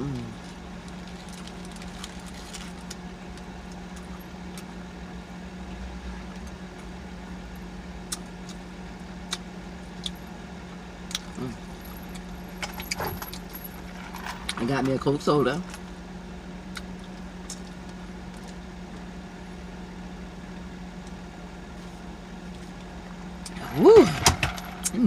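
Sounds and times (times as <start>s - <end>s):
car engine idling: 0.0s - 25.0s
person humming: 23.6s - 24.2s.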